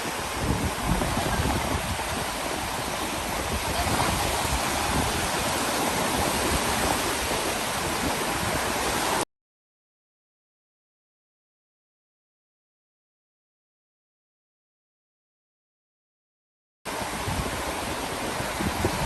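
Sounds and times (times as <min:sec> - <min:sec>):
waves breaking on a beach: 0:00.0 - 0:09.2, 0:16.9 - 0:19.0.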